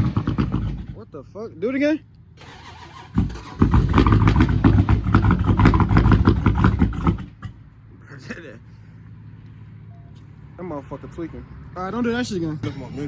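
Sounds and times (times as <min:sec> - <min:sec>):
engine turning over roughly: 0:00.0 - 0:01.0, 0:02.4 - 0:07.6.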